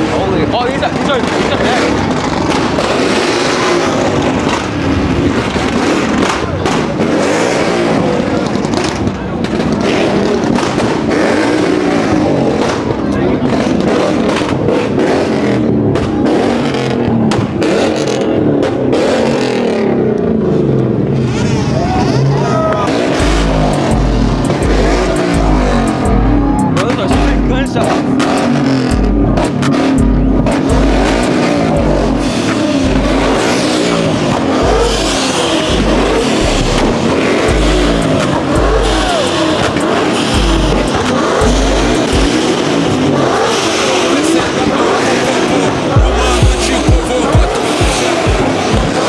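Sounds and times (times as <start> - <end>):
car engine revving: 0.0 - 49.0
pounding bass beat: 21.8 - 49.0.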